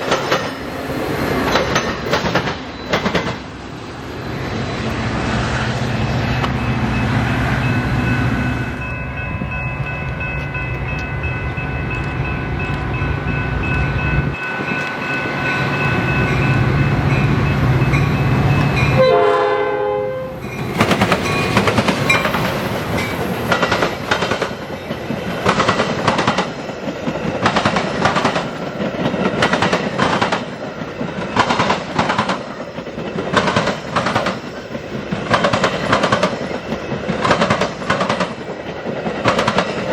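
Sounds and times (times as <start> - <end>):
train wheels clacking on rails: 0.0 - 3.6, 20.4 - 39.9
train engine rumble: 0.0 - 39.9
train horn chord: 18.9 - 20.4.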